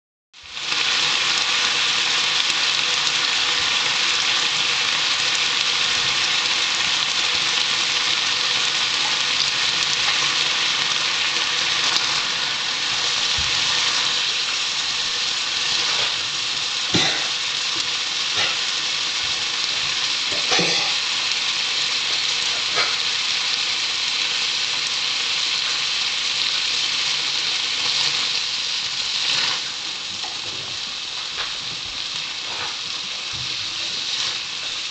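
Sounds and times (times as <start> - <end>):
eggnog sizzling in a frying pan: 0.4 - 34.9
spatula scraping a pan: 15.6 - 16.4, 18.3 - 18.8, 22.1 - 23.1, 29.2 - 30.4, 32.4 - 33.0.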